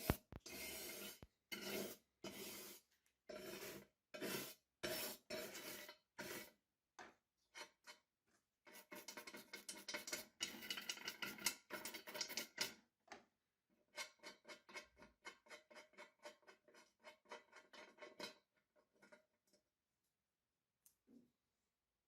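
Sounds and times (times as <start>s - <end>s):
hand tool scraping metal: 0.0s - 6.5s.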